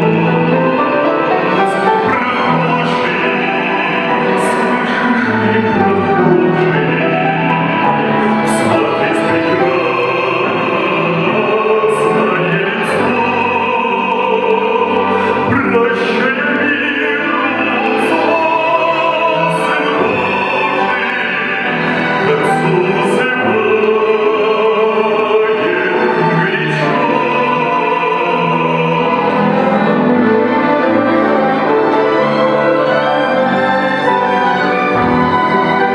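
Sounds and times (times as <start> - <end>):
instrumental accompaniment: 0.0 - 35.9
operatic singing: 0.0 - 35.9.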